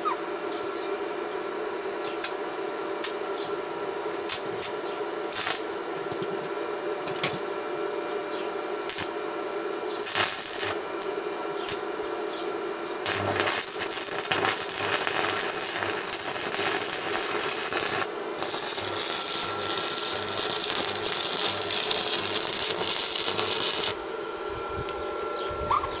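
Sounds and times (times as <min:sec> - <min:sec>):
welding arc crackling: 0:04.3 - 0:05.7, 0:08.9 - 0:09.1, 0:10.0 - 0:11.8, 0:13.0 - 0:24.1.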